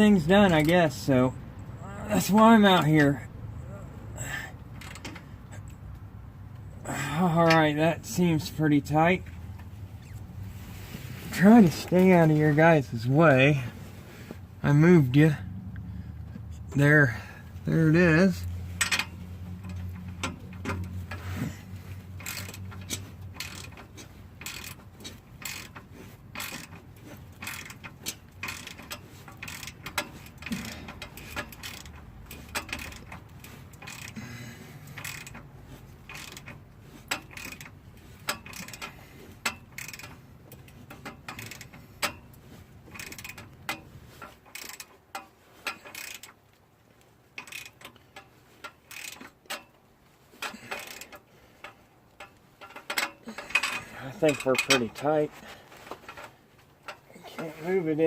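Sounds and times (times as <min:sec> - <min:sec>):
ratchet wrench clicking: 0:18.4 - 0:46.4, 0:47.4 - 0:49.8, 0:50.4 - 0:55.1.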